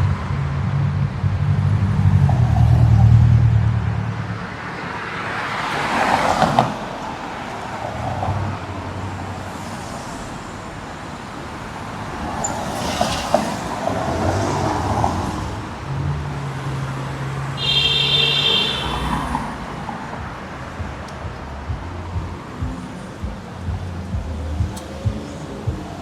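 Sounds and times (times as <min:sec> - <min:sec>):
traffic road noise: 0:00.0 - 0:26.0
sharp clicks: 0:24.7 - 0:25.2.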